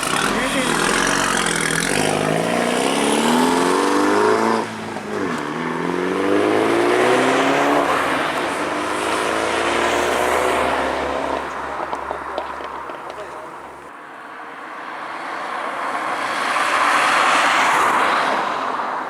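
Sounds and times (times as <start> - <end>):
car engine accelerating hard: 0.0 - 13.9.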